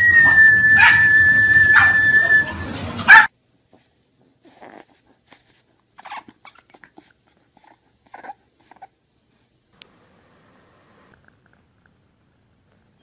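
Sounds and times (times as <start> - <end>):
dog yelping: 0.1 - 2.4, 3.0 - 3.3, 6.0 - 7.0
puppy whimpering: 4.4 - 9.0.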